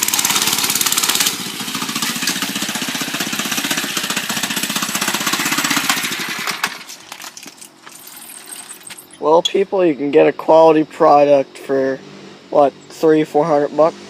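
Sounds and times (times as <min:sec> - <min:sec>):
mini bike engine running: 0:00.0 - 0:07.1.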